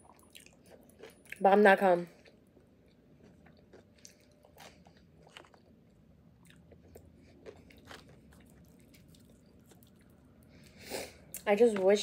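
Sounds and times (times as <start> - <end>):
faint chewing with wet smacks: 0.0 - 1.4, 2.1 - 11.6.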